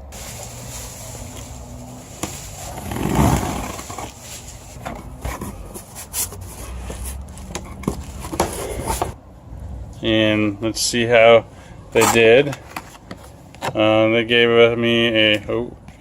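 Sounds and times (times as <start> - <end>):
cardboard box scraping and rustling: 0.1 - 9.2.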